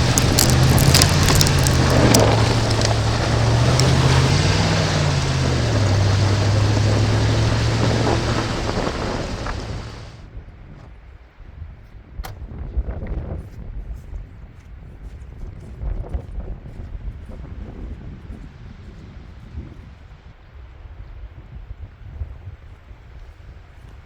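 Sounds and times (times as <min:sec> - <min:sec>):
sharp clicks: 0:00.0 - 0:10.1
truck engine under load: 0:00.0 - 0:10.2
tyre and road noise: 0:00.0 - 0:10.2.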